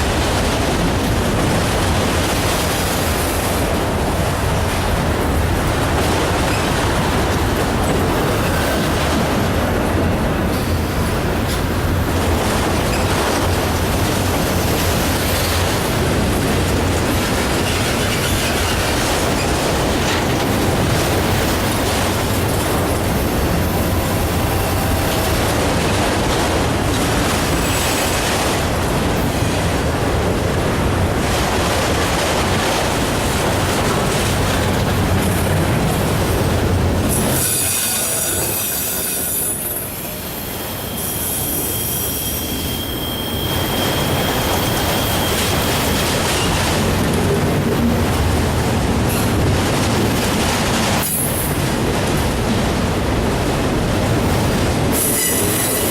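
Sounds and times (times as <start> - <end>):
freight train cars rolling past: 0.0 - 55.9.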